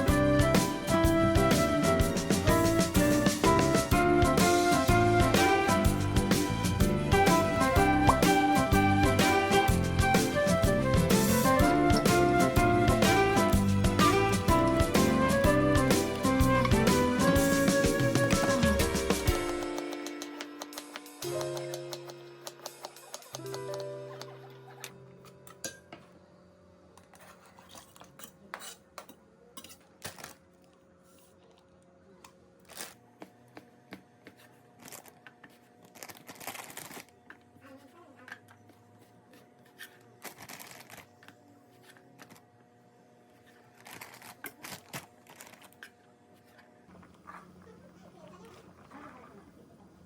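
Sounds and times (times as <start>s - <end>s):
rustling or scraping: 27.0s - 28.7s.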